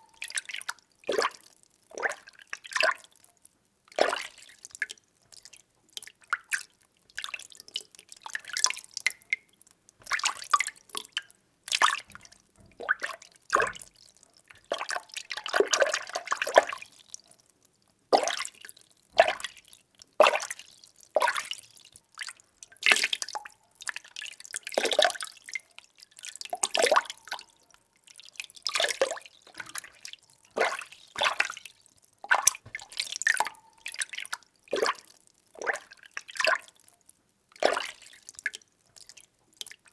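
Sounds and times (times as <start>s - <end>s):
water sloshing when stirred: 10.0s - 16.8s, 28.6s - 35.1s.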